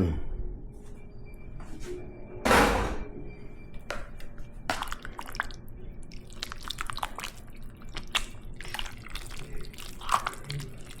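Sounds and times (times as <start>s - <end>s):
wet squelching stew: 4.7s - 11.0s.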